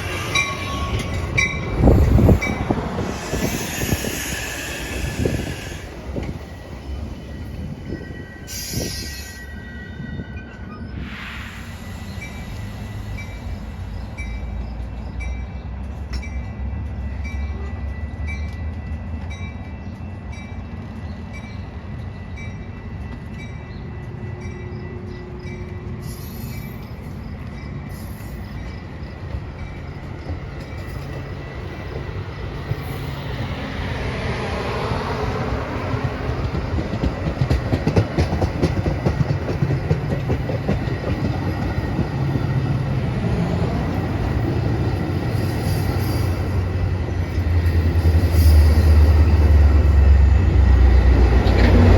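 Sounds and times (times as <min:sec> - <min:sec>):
train rumbling on tracks: 0:00.0 - 0:51.9
train wheels clattering: 0:14.2 - 0:51.9.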